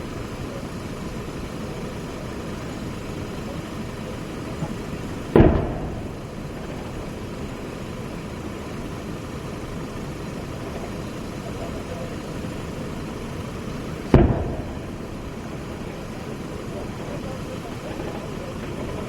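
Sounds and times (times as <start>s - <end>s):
loud gunshot: 5.3s - 6.4s, 14.1s - 15.0s
low rumble: 5.3s - 7.3s, 14.1s - 16.0s.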